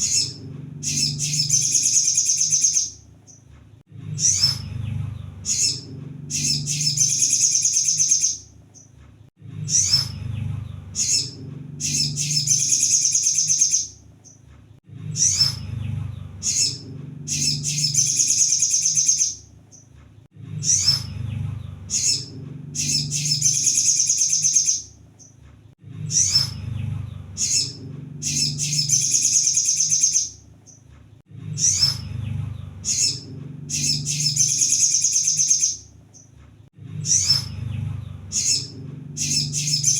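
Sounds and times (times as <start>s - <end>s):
sunbird chips and trill: 0.0s - 3.4s, 5.5s - 8.9s, 11.0s - 14.4s, 16.4s - 19.8s, 21.9s - 25.3s, 27.4s - 30.8s, 32.8s - 36.3s, 38.3s - 39.9s
low steady hum: 0.0s - 13.1s, 13.9s - 23.9s, 24.8s - 34.9s, 35.8s - 39.9s.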